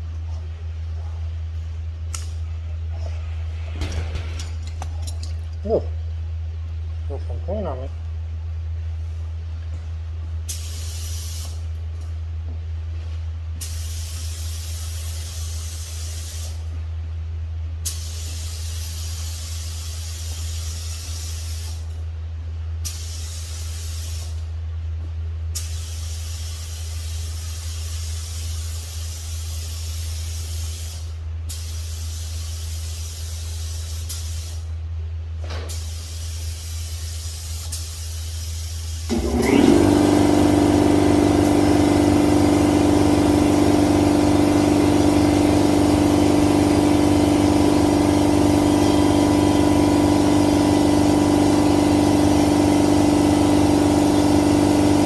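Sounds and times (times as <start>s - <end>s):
steady low hum: 0.0s - 39.4s
paint spray gun hissing: 10.5s - 11.6s, 17.9s - 21.8s, 35.7s - 55.0s.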